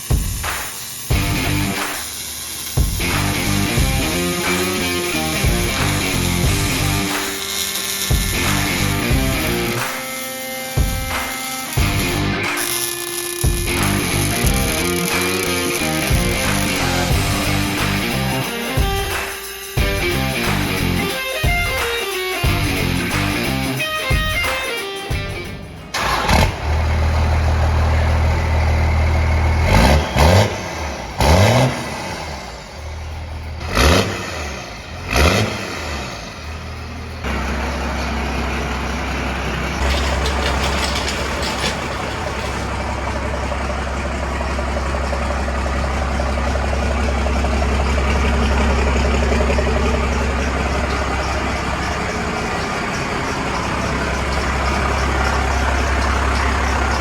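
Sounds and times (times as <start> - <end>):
diesel engine revving and idling: 0.9 - 21.8, 22.4 - 23.8, 25.2 - 57.0.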